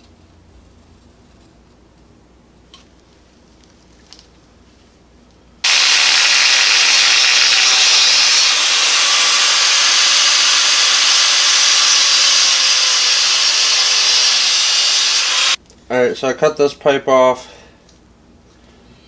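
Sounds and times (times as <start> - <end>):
power tool cutting metal pipe: 5.6 - 15.6.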